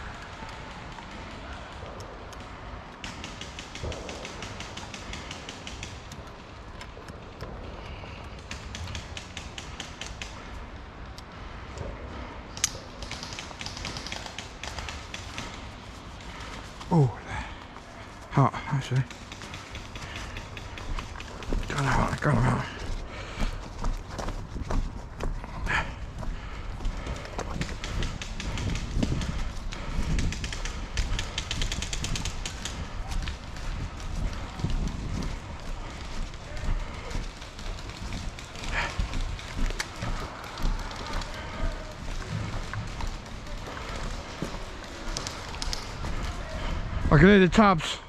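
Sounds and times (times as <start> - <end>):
airsoft guns firing: 2.4 - 6.3, 12.7 - 15.8
wind rumble: 19.1 - 47.2.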